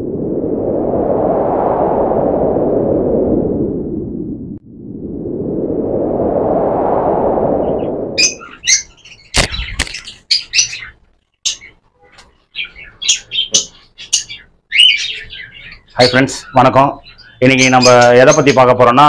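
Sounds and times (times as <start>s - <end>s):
rushing swoosh: 0.0s - 8.6s
cockatiels chirping: 12.5s - 18.5s.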